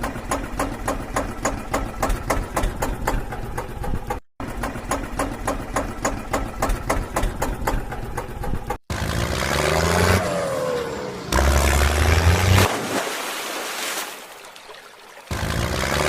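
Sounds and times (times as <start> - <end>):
engine clattering at idle: 0.0 - 8.8
engine revving with whine: 8.8 - 12.7, 15.3 - 16.0.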